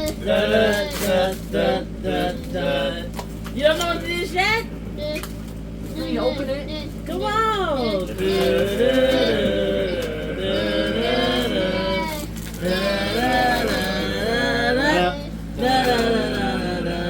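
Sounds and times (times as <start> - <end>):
person singing wordless tune: 7.8 - 17.0.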